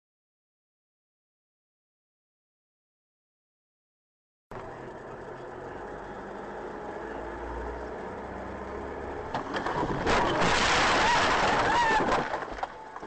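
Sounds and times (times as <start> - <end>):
car engine: 4.5 - 13.0
road noise: 4.5 - 13.0.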